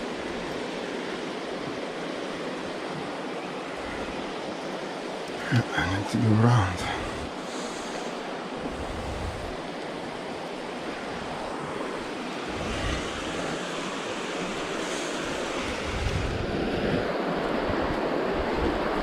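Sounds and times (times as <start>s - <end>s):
wind rushing: 12.4s - 17.1s
wind buffeting microphone: 12.4s - 19.0s.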